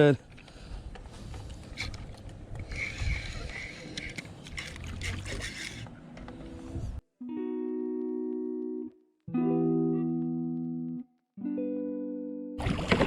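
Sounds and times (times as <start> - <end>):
wind on microphone: 0.7 - 4.0, 6.5 - 7.0
water sloshing: 1.1 - 5.8, 12.6 - 13.0.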